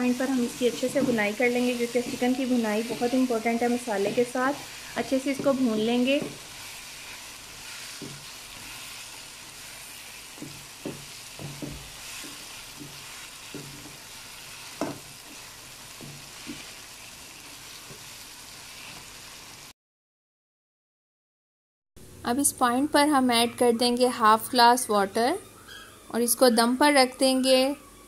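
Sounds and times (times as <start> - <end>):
food sizzling in a wok: 0.0 - 19.7
spatula scraping a pan: 0.5 - 19.2.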